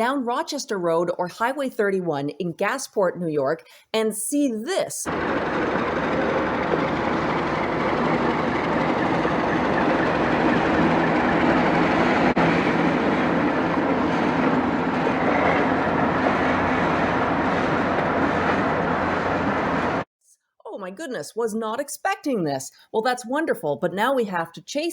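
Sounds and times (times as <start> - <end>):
diesel locomotive engine drone: 5.1 - 20.0.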